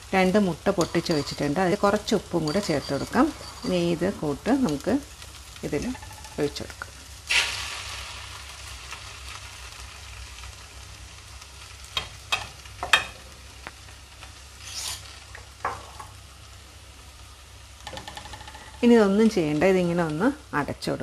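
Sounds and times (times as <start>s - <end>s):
food sizzling in a pan: 0.0s - 21.0s
spatula scraping a pan: 2.4s - 4.0s, 14.6s - 15.1s.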